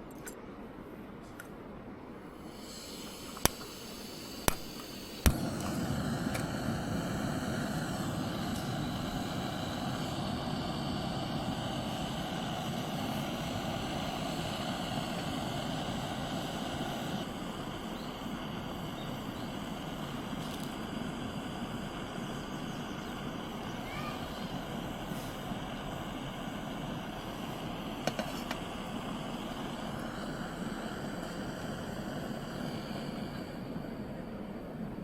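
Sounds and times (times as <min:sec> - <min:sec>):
gas burner roaring: 0:02.3 - 0:35.0
piezo igniter clicks: 0:03.0 - 0:06.6.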